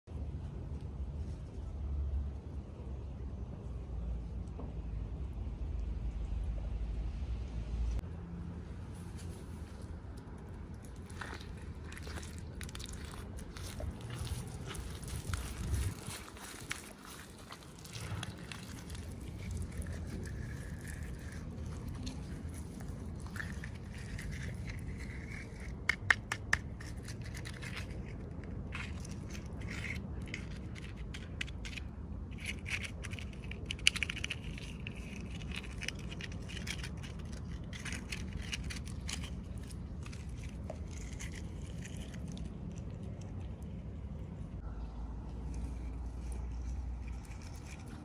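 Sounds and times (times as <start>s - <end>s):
steady low hum: 0.1s - 48.0s
plastic packaging crinkling: 10.8s - 25.0s.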